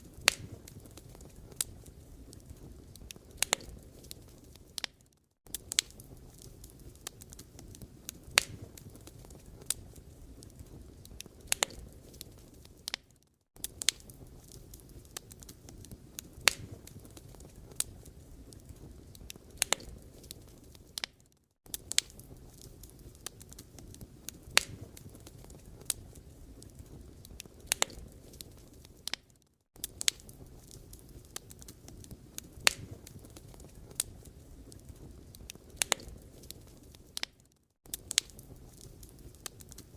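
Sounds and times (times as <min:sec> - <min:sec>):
low fire rumble: 0:00.0 - 0:39.9
wood fire crackling: 0:00.0 - 0:39.9.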